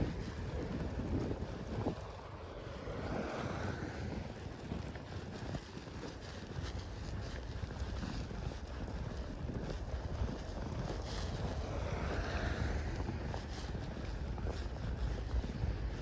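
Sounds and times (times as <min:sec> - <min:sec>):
street traffic: 0:00.0 - 0:05.0, 0:10.4 - 0:16.0
vehicle passing: 0:00.0 - 0:05.2, 0:06.2 - 0:16.0
wind rumbling on microphone: 0:00.0 - 0:16.0.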